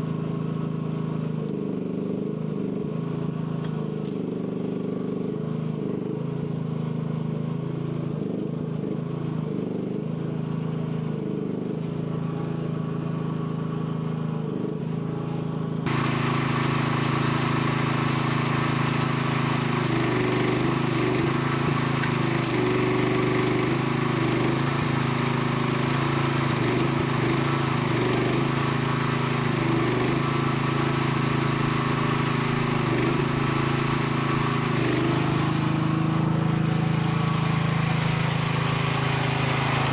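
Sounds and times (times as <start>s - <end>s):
excavator engine under hydraulic load: 15.9s - 39.9s.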